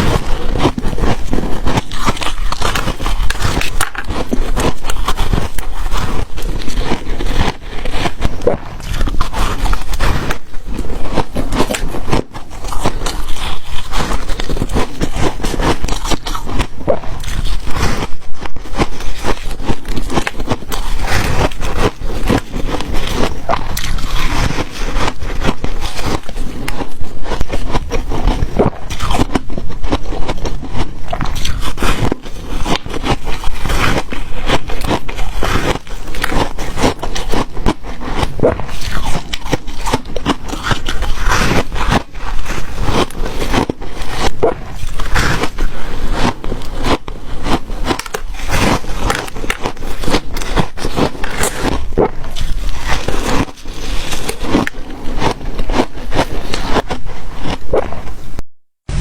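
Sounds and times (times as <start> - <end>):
ice being chewed: 0.0 - 58.4.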